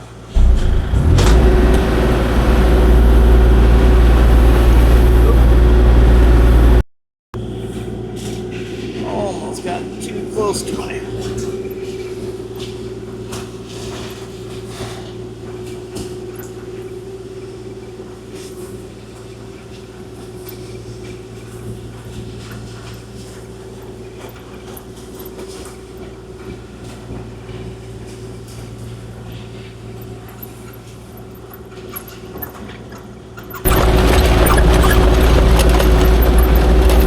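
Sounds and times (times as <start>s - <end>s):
hydraulic whine: 0.0s - 6.8s, 33.4s - 37.0s
excavator diesel engine humming: 0.3s - 6.8s, 33.5s - 37.0s
clicks and scrapes: 33.4s - 37.0s.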